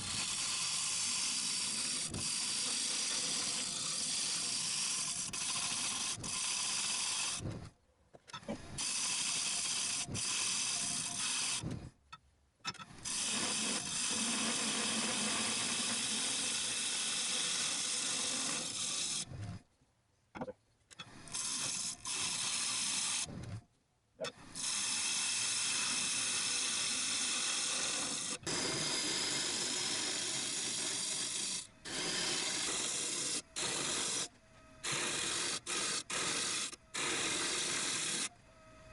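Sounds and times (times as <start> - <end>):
wood lathe gouge cutting: 24.5 - 38.3.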